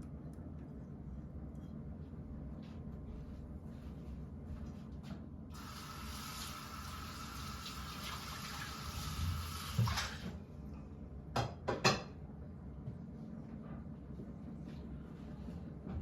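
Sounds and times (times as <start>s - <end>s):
tap running into sink: 7.6s - 10.3s.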